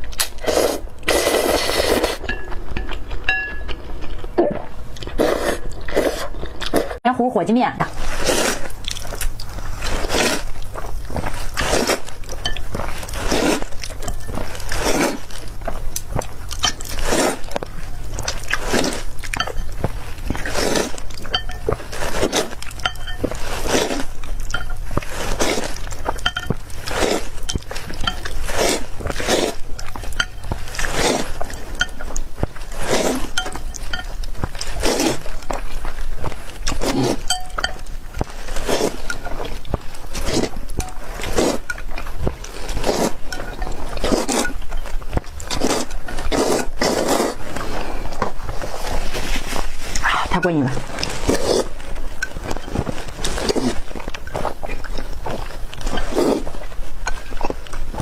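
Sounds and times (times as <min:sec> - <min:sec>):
utensils clinking on dish: 0:02.2 - 0:03.9, 0:12.4 - 0:13.2, 0:16.5 - 0:17.1, 0:18.8 - 0:29.1, 0:29.8 - 0:32.2, 0:33.2 - 0:34.7, 0:36.7 - 0:38.0, 0:42.8 - 0:46.8, 0:52.1 - 0:53.5
close-miked chewing noodles: 0:07.9 - 0:58.0.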